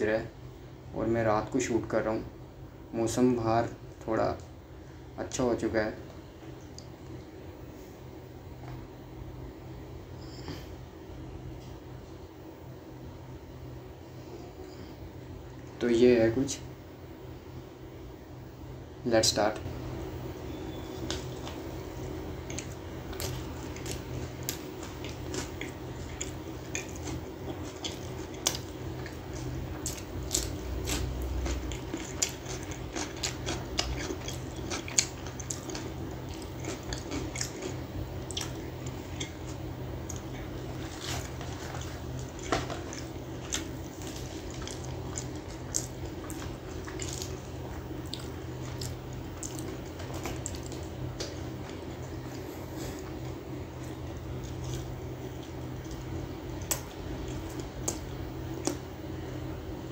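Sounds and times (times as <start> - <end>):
steady low hum: 0.0 - 59.9
biting and chewing bread: 21.0 - 59.0.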